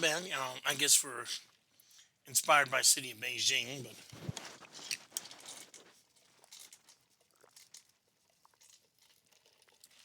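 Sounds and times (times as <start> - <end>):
chewing with crackly clicks: 4.0 - 10.0.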